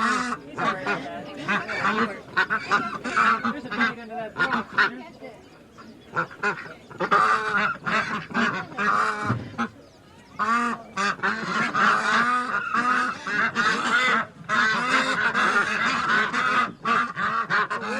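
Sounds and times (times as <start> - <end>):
ducks and geese honking and quacking: 0.0 - 17.9.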